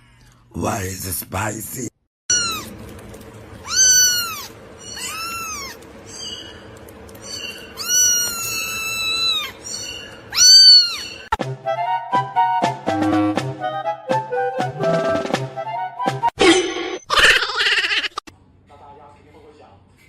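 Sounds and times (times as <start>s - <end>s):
cat meowing: 2.3s - 2.8s, 3.6s - 5.8s, 7.3s - 11.3s.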